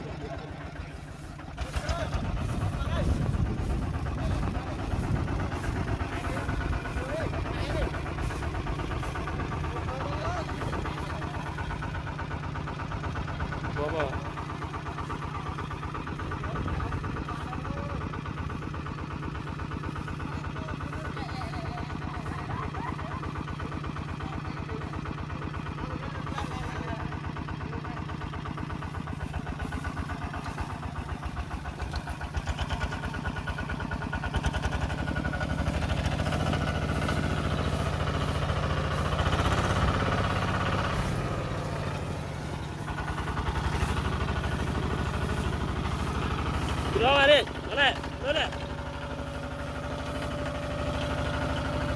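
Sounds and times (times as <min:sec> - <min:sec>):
tractor engine chugging: 0:00.0 - 0:51.9.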